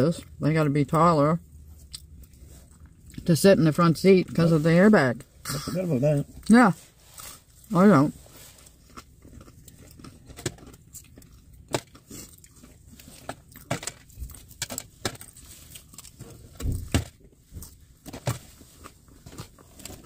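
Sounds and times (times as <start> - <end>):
chewing potatoes: 1.6 - 3.4, 8.4 - 20.0.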